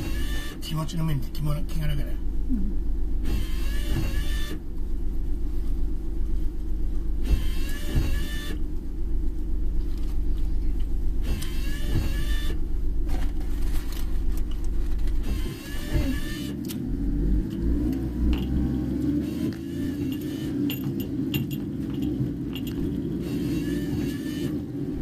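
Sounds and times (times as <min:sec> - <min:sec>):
car engine and road rumble: 0:00.0 - 0:25.0
windshield wiper squeaky swish: 0:03.3 - 0:04.6, 0:07.2 - 0:08.6, 0:11.2 - 0:12.6, 0:15.2 - 0:16.6, 0:23.3 - 0:24.6.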